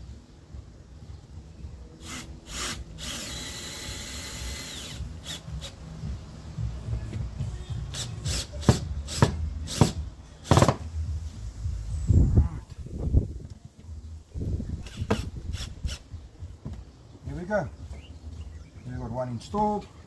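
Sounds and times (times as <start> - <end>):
cordless drill whirring: 2.0 - 5.8, 14.8 - 16.0.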